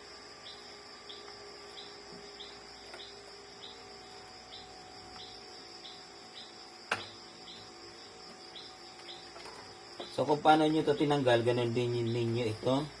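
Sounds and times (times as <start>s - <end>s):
cricket chirping: 0.0s - 13.0s
high insect buzz: 0.0s - 13.0s.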